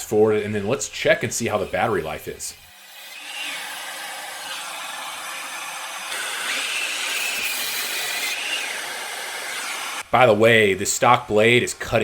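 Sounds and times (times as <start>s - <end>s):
miter saw cutting boards: 0.1s - 10.0s.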